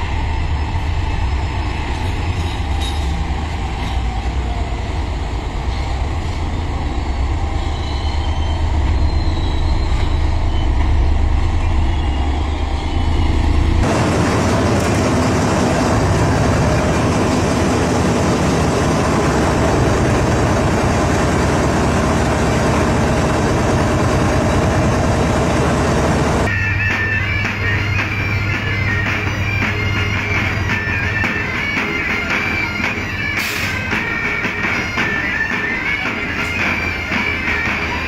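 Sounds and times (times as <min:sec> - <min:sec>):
diesel locomotive engine droning: 0:00.0 - 0:38.0
moving train rushing noise: 0:00.0 - 0:38.0.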